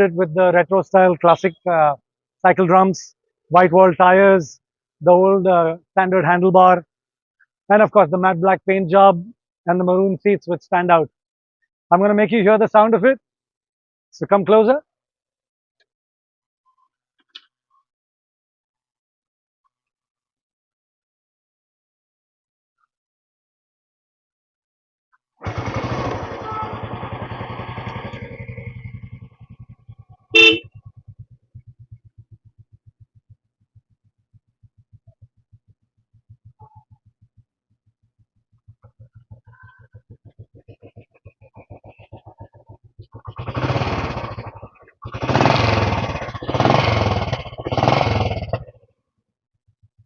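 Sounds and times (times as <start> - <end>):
motorcycle engine running: 25.4 - 48.8, 49.6 - 50.0
horn beep: 30.3 - 30.7.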